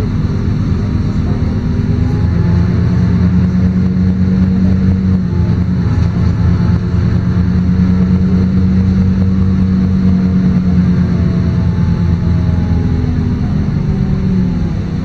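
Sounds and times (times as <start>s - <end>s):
bus diesel engine humming: 0.0s - 15.0s.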